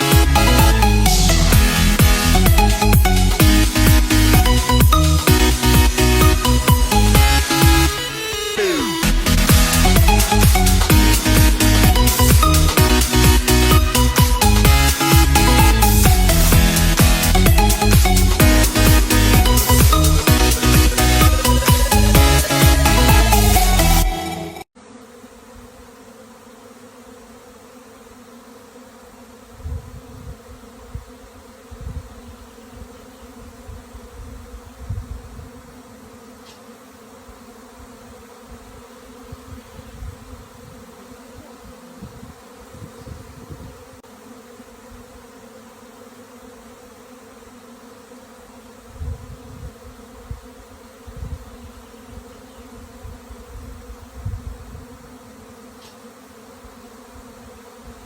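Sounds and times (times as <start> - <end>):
honeybees buzzing: 0.0 - 58.0.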